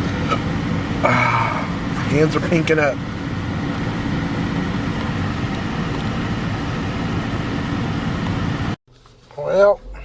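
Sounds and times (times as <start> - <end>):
heater fan air rush: 0.0 - 8.8
car engine idling hum: 0.0 - 10.0.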